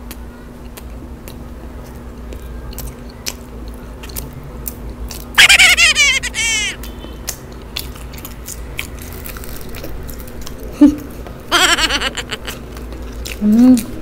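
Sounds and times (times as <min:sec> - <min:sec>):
close chewing: 0:00.1 - 0:05.3, 0:07.3 - 0:11.2, 0:12.5 - 0:14.0.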